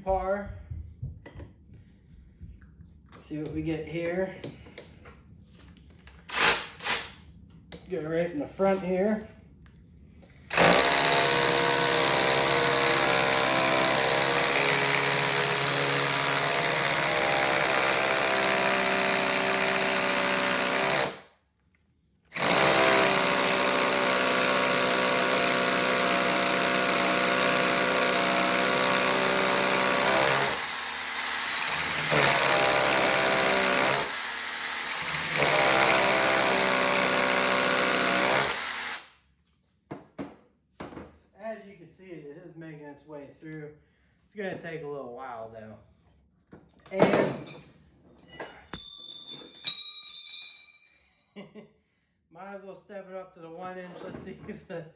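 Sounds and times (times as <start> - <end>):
hammer drill drilling into brick: 6.3 - 7.2, 10.5 - 21.2, 22.4 - 39.1.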